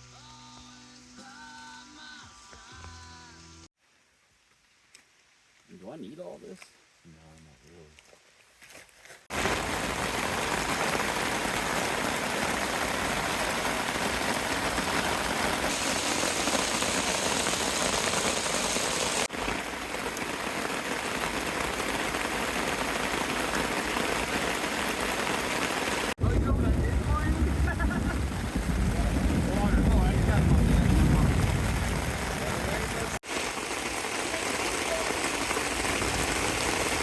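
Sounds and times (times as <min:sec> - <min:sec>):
heavy rain: 0:09.3 - 0:37.0.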